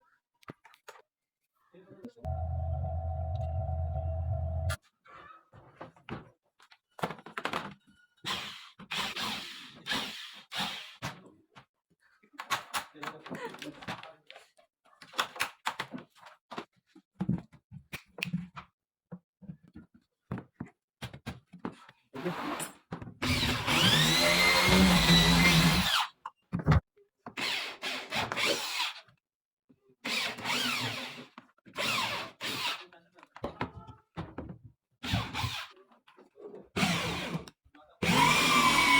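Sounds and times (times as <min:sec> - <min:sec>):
electric drill whining: 0:02.3 - 0:04.8, 0:23.3 - 0:26.0, 0:38.0 - 0:38.9.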